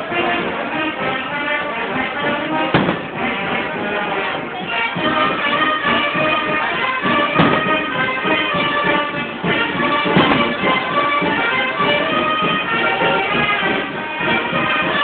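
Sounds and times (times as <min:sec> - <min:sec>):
brass band playing: 0:00.0 - 0:15.0
sharp cracks: 0:02.7 - 0:03.2.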